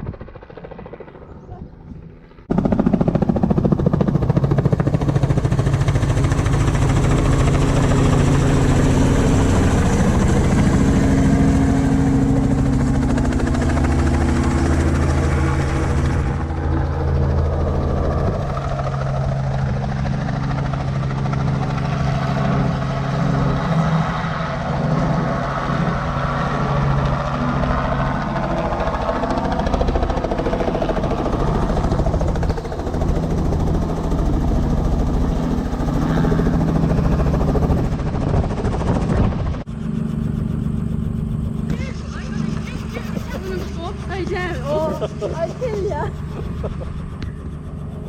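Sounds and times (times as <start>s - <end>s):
helicopter engine and rotor: 0.0s - 48.0s.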